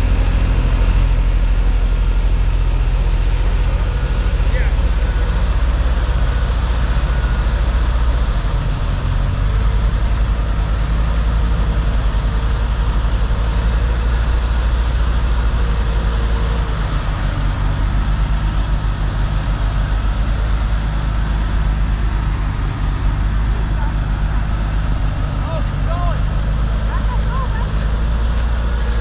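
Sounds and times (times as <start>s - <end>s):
deep engine rumble: 0.0s - 29.0s.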